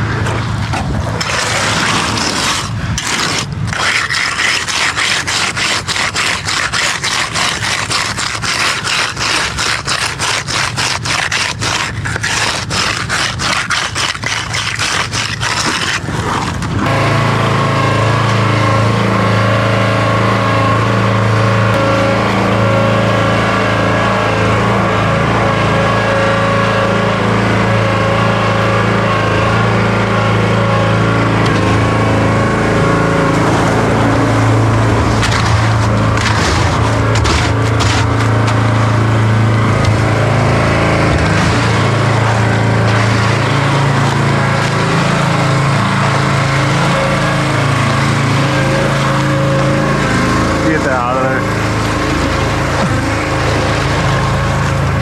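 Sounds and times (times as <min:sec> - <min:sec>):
low machine drone: 0:00.0 - 0:13.5, 0:14.2 - 0:55.0
quick scraping strokes: 0:01.2 - 0:16.9, 0:34.8 - 0:47.2.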